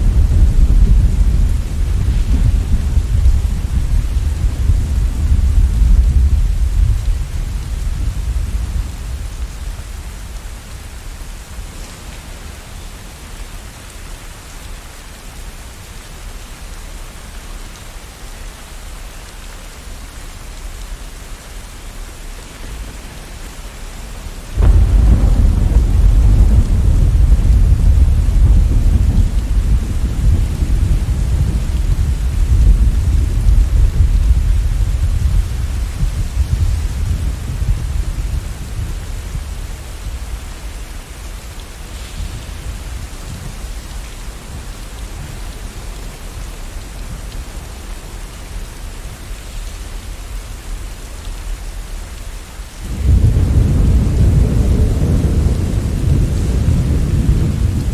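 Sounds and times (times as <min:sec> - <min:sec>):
loud thunderclap: 0:00.0 - 0:09.0, 0:24.6 - 0:39.4, 0:52.8 - 0:57.9
thunder rumbling: 0:00.0 - 0:10.7, 0:24.2 - 0:47.4, 0:52.8 - 0:57.9
steady rain: 0:00.0 - 0:57.9.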